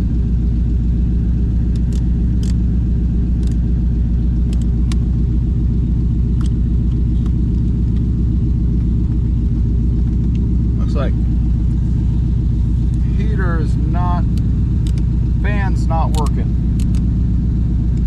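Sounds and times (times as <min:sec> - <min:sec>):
car engine idling: 0:00.0 - 0:18.0
dashboard control clicks: 0:01.7 - 0:02.6, 0:03.4 - 0:03.7, 0:04.3 - 0:05.1, 0:06.3 - 0:08.1, 0:14.2 - 0:15.1, 0:16.0 - 0:17.1.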